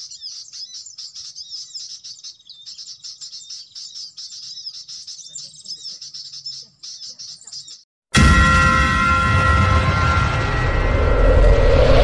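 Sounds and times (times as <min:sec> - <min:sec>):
small birds chirping: 0:00.0 - 0:07.9.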